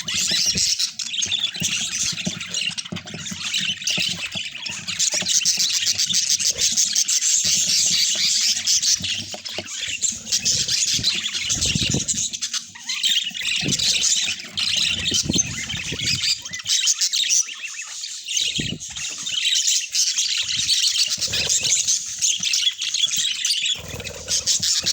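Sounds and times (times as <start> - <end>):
budgerigars chattering: 0.0 - 24.9.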